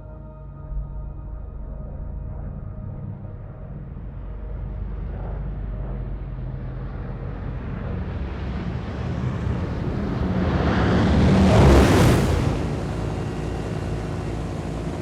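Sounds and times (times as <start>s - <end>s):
propeller aircraft engines droning: 3.1s - 15.0s.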